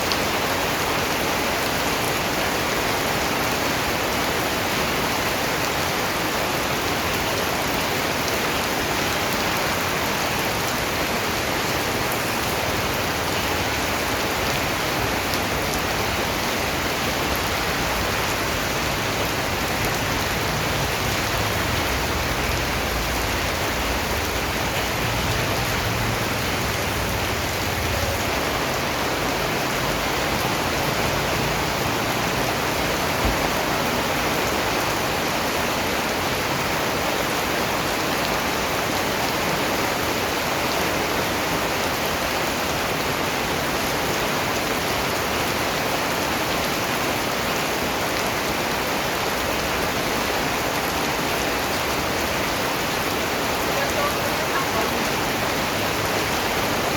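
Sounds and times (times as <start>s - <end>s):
rain pattering: 0.0s - 56.9s.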